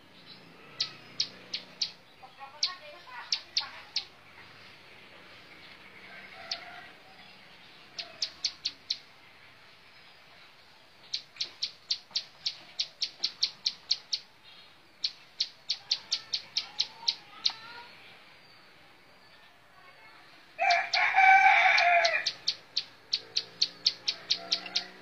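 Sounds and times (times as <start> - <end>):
bird high ticking calls: 0.2 - 4.2, 7.9 - 9.2, 11.0 - 14.4, 15.0 - 17.9, 20.6 - 25.0.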